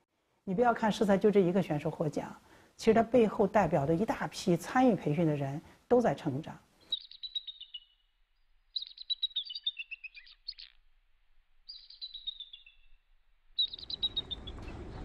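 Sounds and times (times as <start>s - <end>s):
songbird singing: 6.8s - 10.9s, 11.6s - 15.0s.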